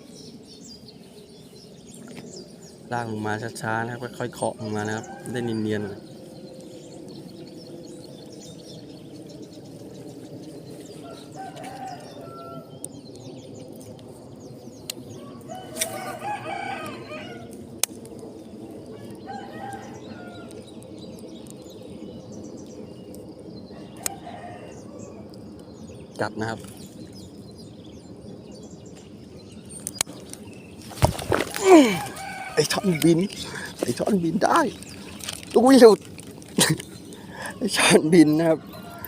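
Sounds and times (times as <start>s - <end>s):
steady low hum: 0.0s - 39.0s
rooster crowing: 4.6s - 6.0s, 11.0s - 12.8s, 15.2s - 17.5s, 18.9s - 20.6s, 23.7s - 25.2s, 31.6s - 34.0s, 38.2s - 39.0s
short fowl calls: 31.6s - 33.7s.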